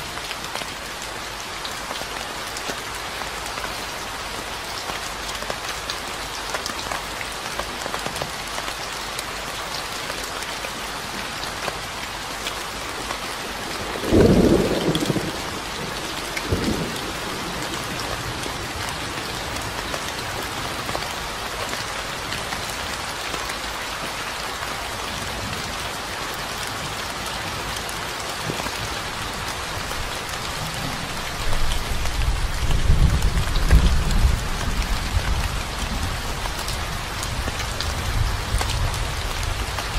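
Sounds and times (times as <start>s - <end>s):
rain pattering: 0.0s - 39.9s
low rumble of thunder: 13.9s - 18.1s, 31.8s - 36.2s.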